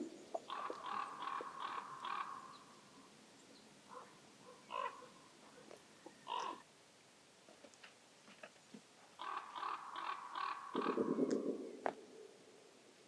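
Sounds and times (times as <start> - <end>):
crow cawing: 0.5 - 2.6, 4.7 - 5.1, 6.2 - 6.6, 9.2 - 11.4.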